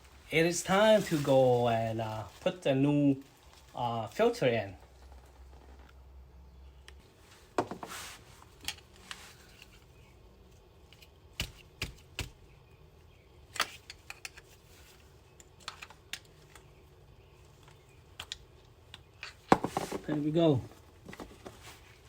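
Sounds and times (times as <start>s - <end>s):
light clicks and taps of parts: 6.8s - 7.0s, 8.6s - 9.9s, 13.5s - 16.7s, 17.6s - 19.6s.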